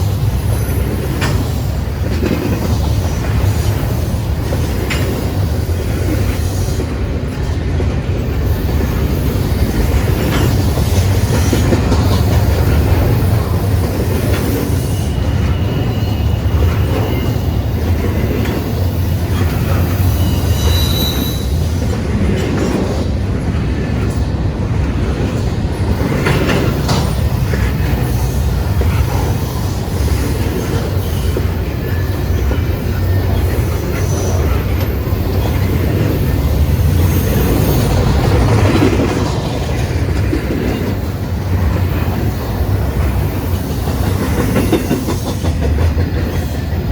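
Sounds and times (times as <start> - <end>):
freight train wheels rumbling: 0.0 - 46.9
rail-joint clatter: 0.0 - 46.9
high-pitched wheel squeal: 14.2 - 18.4, 19.2 - 21.8.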